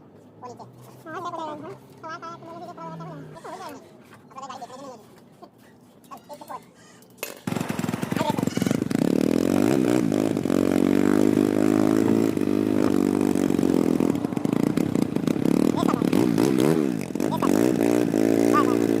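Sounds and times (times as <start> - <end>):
motorcycle engine starting and running: 7.2 - 19.0.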